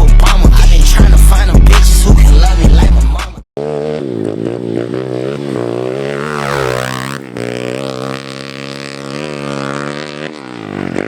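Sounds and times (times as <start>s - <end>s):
motorbike engine revving: 3.6s - 11.0s.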